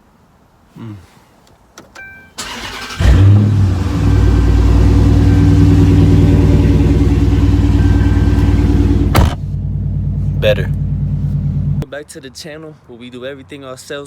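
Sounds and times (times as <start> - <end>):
car engine revving and idling: 2.6 - 11.8.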